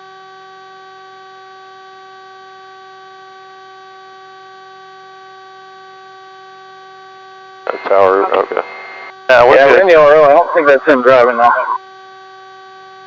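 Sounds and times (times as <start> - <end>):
electrical whine on radio feed: 5.4 - 13.0.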